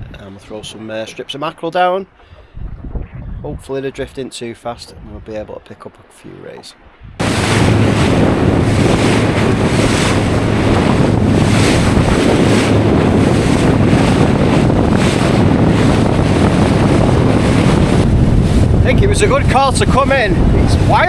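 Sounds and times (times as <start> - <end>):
wind buffeting microphone: 2.4 - 3.7, 6.9 - 21.0
hull hitting waves: 7.2 - 21.0
outboard motor humming: 7.2 - 21.0.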